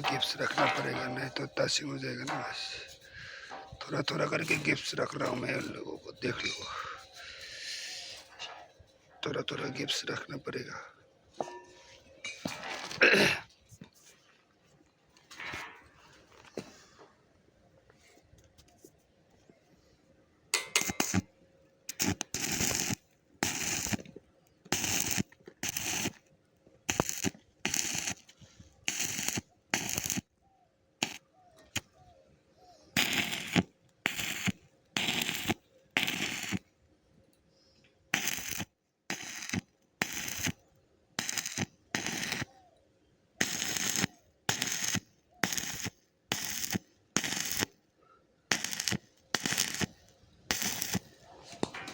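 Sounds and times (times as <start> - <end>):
electric arc welding crackle: 20.6 - 21.3, 21.9 - 24.1, 24.7 - 26.2, 26.9 - 28.3, 28.9 - 30.3, 31.0 - 31.2, 33.0 - 36.6, 38.1 - 40.6, 41.2 - 42.5, 43.4 - 47.8, 48.5 - 51.2.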